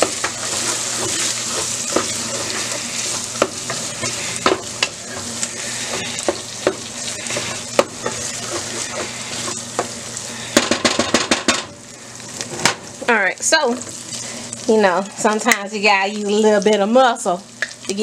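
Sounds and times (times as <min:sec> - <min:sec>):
wooden spoon scraping pot: 0:00.0 - 0:09.9
meat sizzling in a pot: 0:00.0 - 0:18.0.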